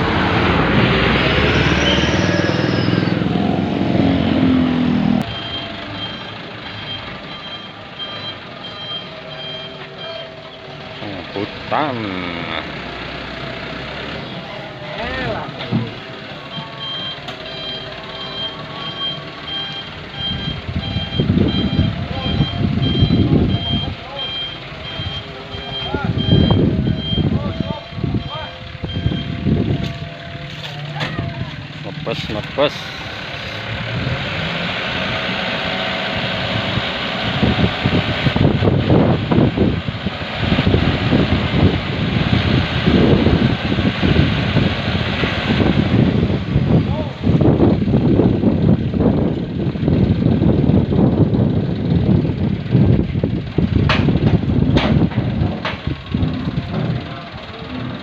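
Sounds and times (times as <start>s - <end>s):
truck engine running: 0.0s - 58.0s
reversing alarm beeping: 5.2s - 11.7s, 16.4s - 31.0s.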